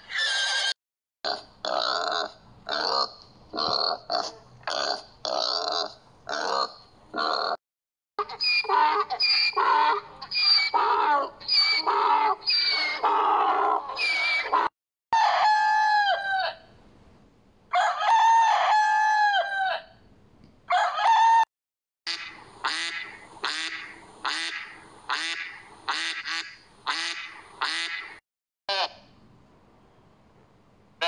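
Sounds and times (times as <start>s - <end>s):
donkey braying: 8.2s - 14.7s
rooster crowing: 15.2s - 16.6s, 17.7s - 19.9s, 20.7s - 21.5s.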